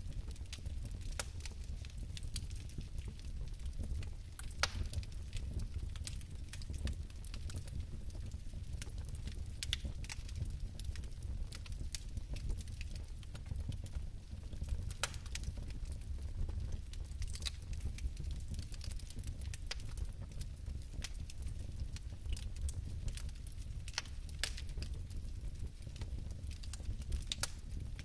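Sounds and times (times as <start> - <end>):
fire crackling and popping: 0.0 - 28.0
low rumble of flame: 0.0 - 28.0.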